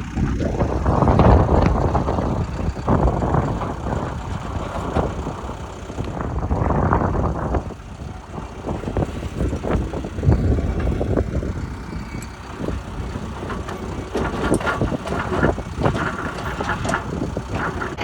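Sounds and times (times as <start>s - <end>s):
bulldozer diesel engine rumbling: 0.0s - 18.0s
knocks and clanks: 8.3s - 18.0s.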